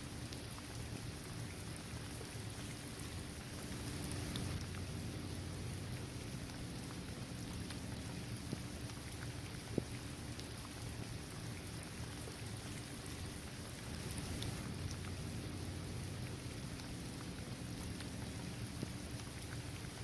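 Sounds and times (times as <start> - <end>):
steady rain on court and trees: 0.0 - 20.0
raindrops ticking: 3.1 - 11.5, 13.0 - 20.0.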